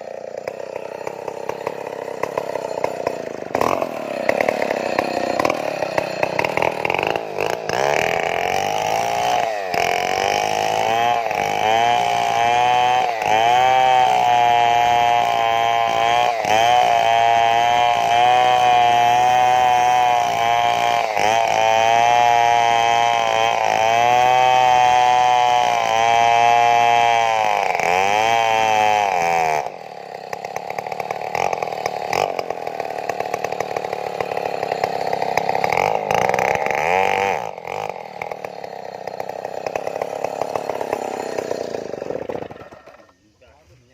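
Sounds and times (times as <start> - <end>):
chainsaw cutting tree trunk: 0.0 - 43.9.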